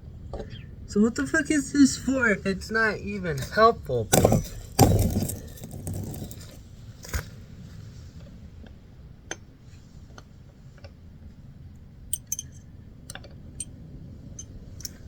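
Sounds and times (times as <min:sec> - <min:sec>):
low steady hum: 0:11.6 - 0:15.0
small metal parts clicking: 0:12.1 - 0:13.2.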